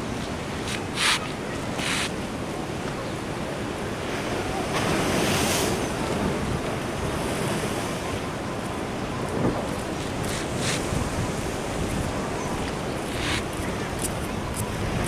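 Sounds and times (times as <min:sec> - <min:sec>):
ocean surf washing in: 0:03.4 - 0:15.0
wind buffeting microphone: 0:03.8 - 0:15.0.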